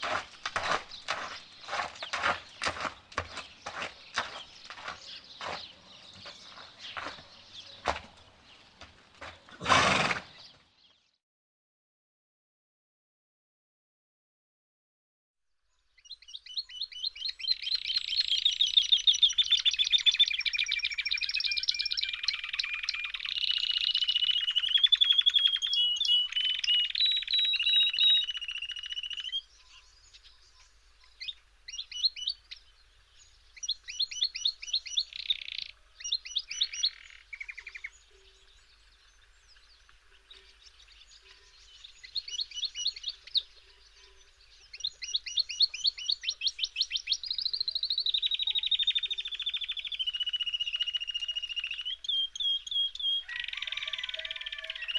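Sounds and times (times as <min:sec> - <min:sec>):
songbird trilling: 0:16.0 - 0:32.6, 0:33.6 - 0:54.9.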